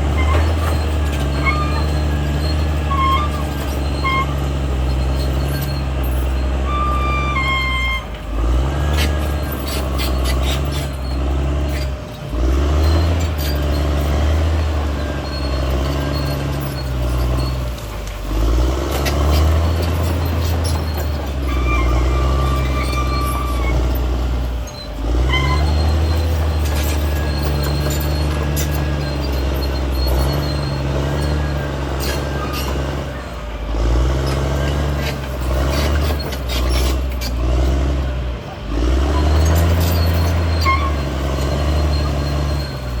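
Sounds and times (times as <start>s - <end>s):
bulldozer diesel engine under load: 0.0s - 43.0s
sharp metallic clanks: 0.1s - 33.3s.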